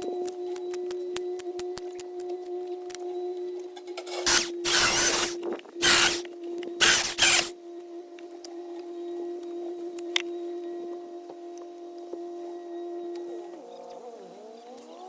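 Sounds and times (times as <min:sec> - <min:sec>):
loud bursts of hissing: 0:04.3 - 0:06.2, 0:06.8 - 0:07.5.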